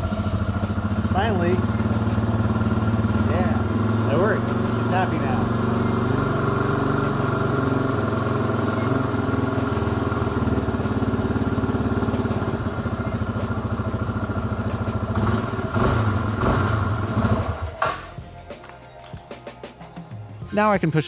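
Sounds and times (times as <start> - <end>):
motorcycle engine idling: 0.0 - 20.2.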